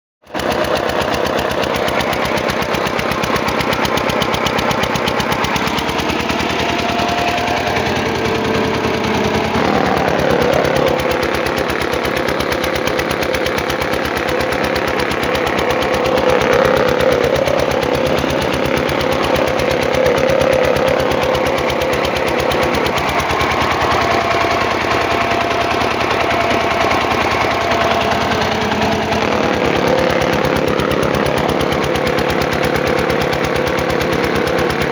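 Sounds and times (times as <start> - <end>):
generator engine knocking: 0.2 - 34.9
humming tone: 4.6 - 12.5, 14.4 - 33.4.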